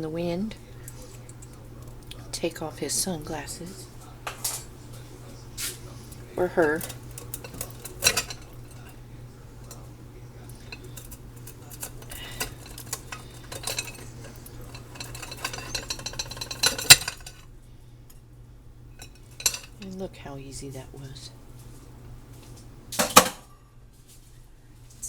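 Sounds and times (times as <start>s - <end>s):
metal clinks and scrapes: 6.6s - 8.9s, 10.6s - 17.4s, 19.0s - 19.9s.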